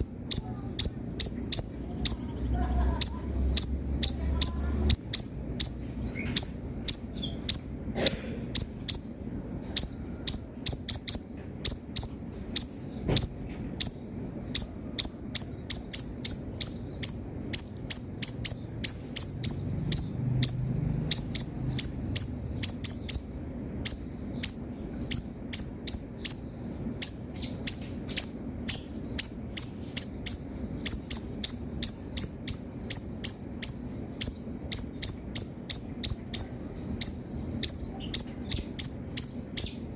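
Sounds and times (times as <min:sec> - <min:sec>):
sunbird chipping calls: 0:00.0 - 0:39.9.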